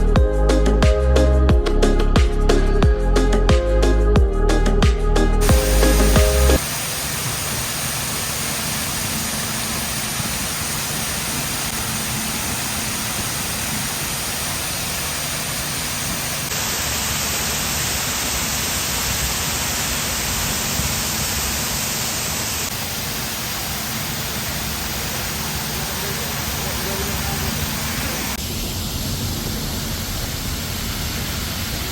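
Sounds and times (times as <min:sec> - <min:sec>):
waterfall rushing: 0:05.4 - 0:31.9.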